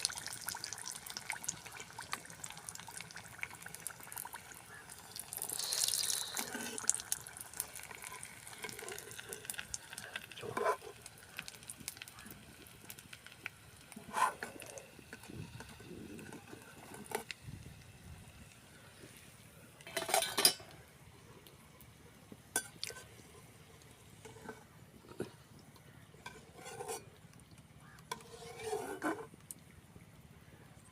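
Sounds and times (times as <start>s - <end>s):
oil sizzling: 0.0s - 19.4s
metal utensil scraping pot: 5.6s - 7.0s, 7.6s - 9.6s, 10.4s - 11.0s, 13.9s - 17.3s, 19.8s - 20.8s, 24.2s - 25.4s, 26.2s - 27.2s, 28.1s - 29.4s.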